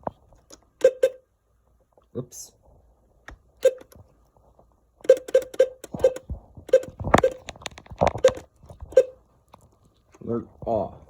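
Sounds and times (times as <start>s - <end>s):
button clicks with brief tones: 0.8s - 1.2s, 3.6s - 4.0s, 5.0s - 7.4s.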